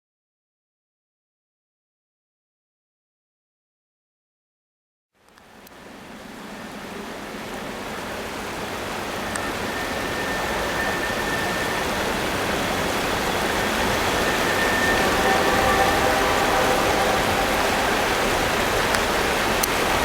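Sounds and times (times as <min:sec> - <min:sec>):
train rumble: 0:05.6 - 0:20.0
faint squealing tones: 0:08.6 - 0:20.0.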